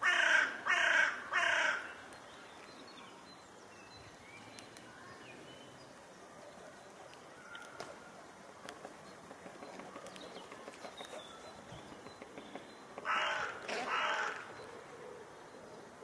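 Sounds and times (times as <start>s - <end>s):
bird giving harsh raspy calls: 0.0s - 1.9s, 13.0s - 14.5s.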